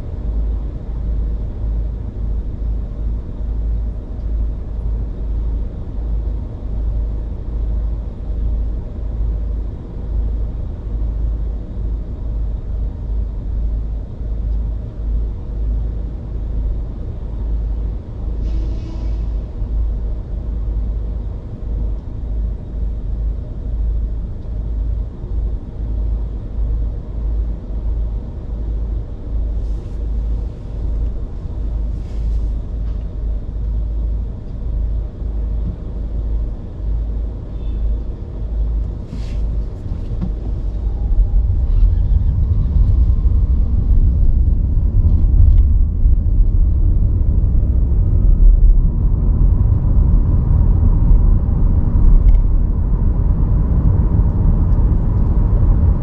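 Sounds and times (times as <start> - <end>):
car road rumble: 29.3 - 56.0
brief hiss: 39.1 - 39.5.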